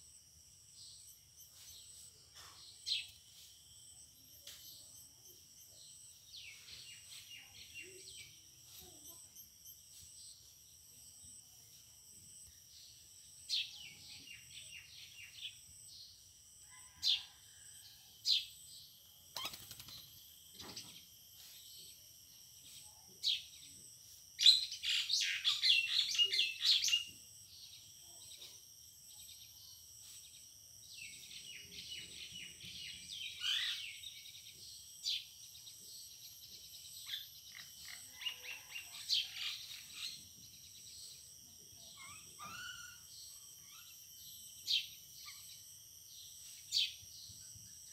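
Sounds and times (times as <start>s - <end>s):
high insect drone: 0.0s - 47.9s
small birds chirping: 19.3s - 22.0s, 31.0s - 47.9s.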